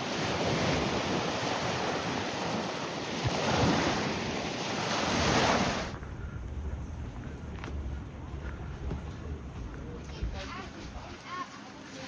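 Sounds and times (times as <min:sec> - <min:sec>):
surf washing onto beach: 0:00.0 - 0:06.0
wind buffeting microphone: 0:00.2 - 0:11.2.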